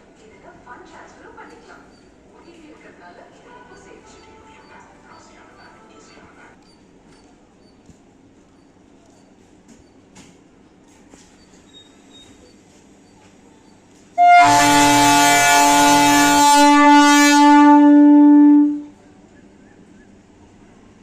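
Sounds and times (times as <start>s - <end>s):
train air horn blast: 14.2s - 19.0s.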